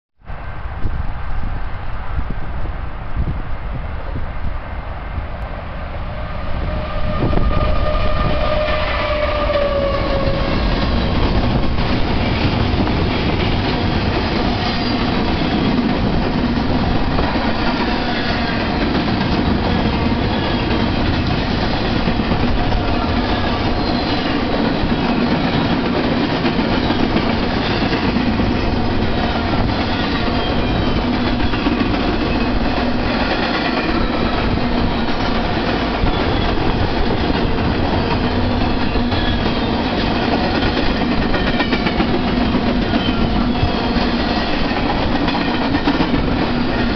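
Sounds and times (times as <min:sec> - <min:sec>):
train horn: 0:05.5 - 0:11.2, 0:22.0 - 0:24.5.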